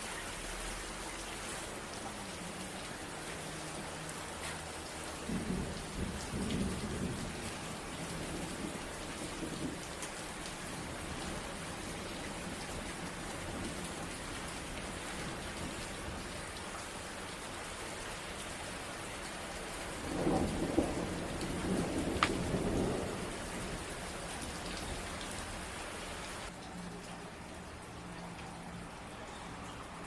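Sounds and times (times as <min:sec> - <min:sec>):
steady rain falling: 0:00.0 - 0:30.0
thunder rumbling: 0:05.2 - 0:09.8, 0:20.0 - 0:25.3.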